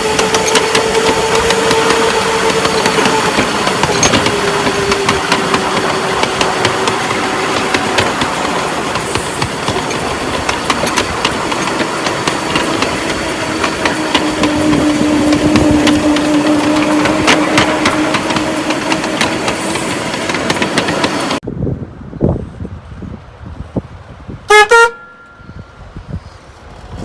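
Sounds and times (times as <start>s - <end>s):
humming tone: 13.8s - 19.2s.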